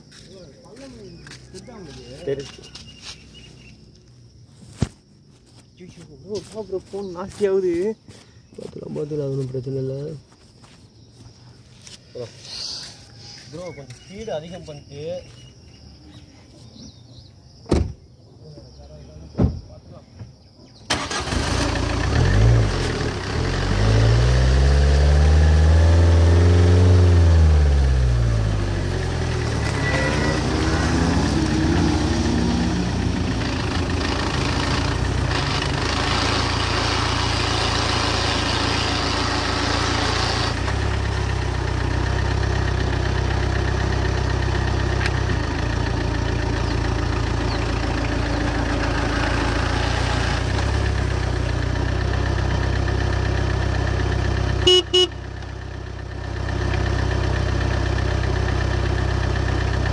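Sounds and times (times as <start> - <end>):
car engine revving: 20.9 - 55.2.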